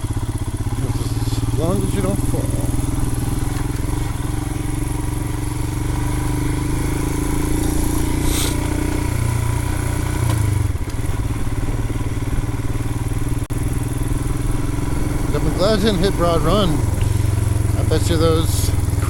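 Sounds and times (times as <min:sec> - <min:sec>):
motorcycle engine running: 0:00.0 - 0:19.0
short hiss: 0:08.2 - 0:08.7.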